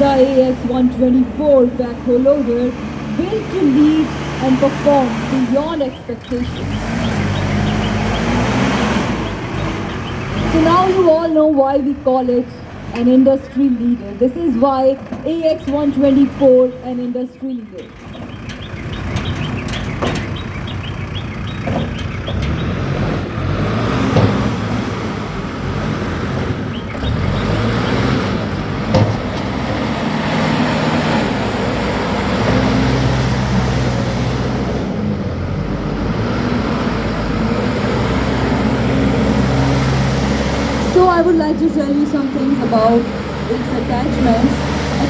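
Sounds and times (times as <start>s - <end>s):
diesel engine working: 0.0s - 45.0s
sharp knocks: 21.5s - 22.9s, 24.0s - 25.0s.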